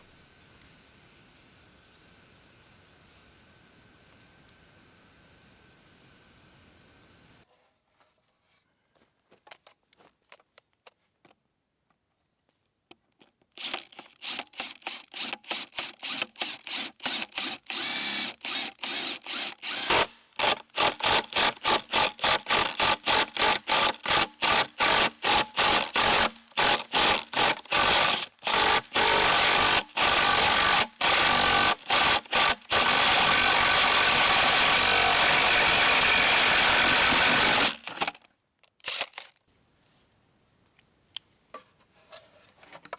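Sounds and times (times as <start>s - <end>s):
power tool cutting bamboo: 13.6s - 38.2s.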